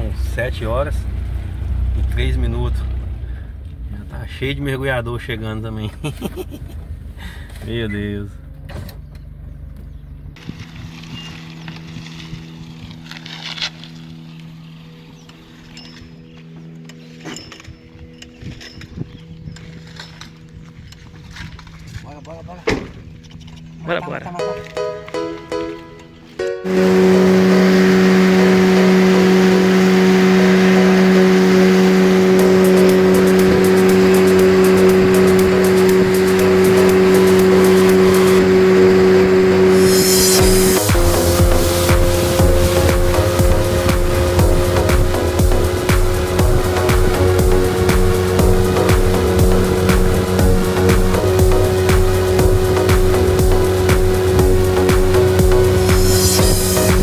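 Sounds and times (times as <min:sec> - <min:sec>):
engine humming: 0:00.0 - 0:17.2, 0:24.5 - 0:57.0
wind noise: 0:10.3 - 0:13.1, 0:17.7 - 0:23.8
outboard motor running: 0:26.6 - 0:57.0.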